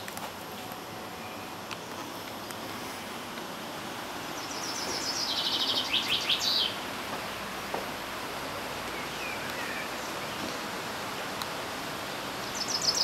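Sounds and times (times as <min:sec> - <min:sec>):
outdoor background hiss: 0:00.0 - 0:13.0
songbird singing: 0:00.7 - 0:03.0, 0:04.0 - 0:07.9, 0:08.8 - 0:11.6, 0:12.2 - 0:13.0.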